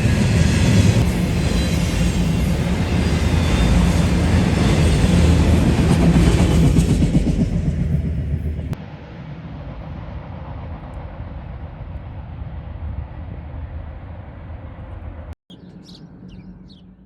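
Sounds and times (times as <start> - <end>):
freight train rumbling past: 0.0 - 17.0
birds chirping: 15.5 - 17.0.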